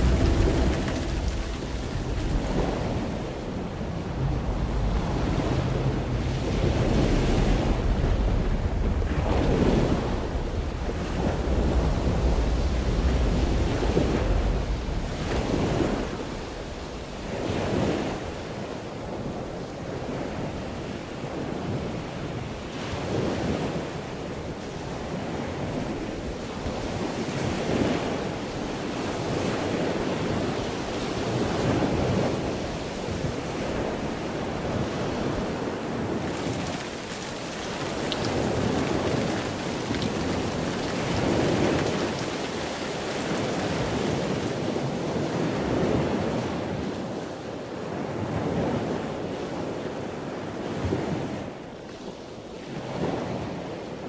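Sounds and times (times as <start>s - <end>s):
ocean waves washing: 0.0s - 54.0s.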